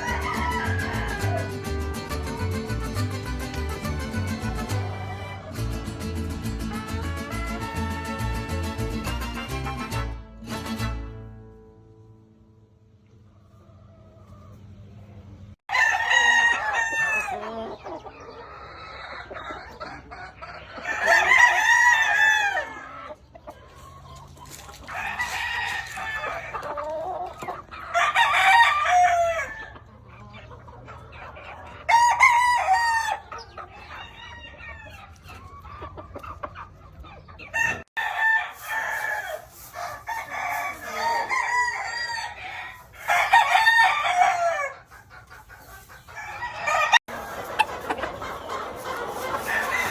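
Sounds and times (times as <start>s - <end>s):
roosters crowing: 0.0s - 5.8s, 15.7s - 30.0s, 31.6s - 35.2s, 37.4s - 49.9s.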